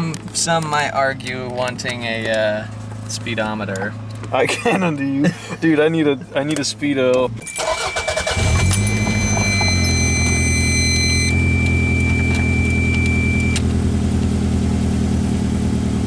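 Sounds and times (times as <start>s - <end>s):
car engine starting and idling: 0.0s - 16.0s
high electronic tone: 7.4s - 13.6s.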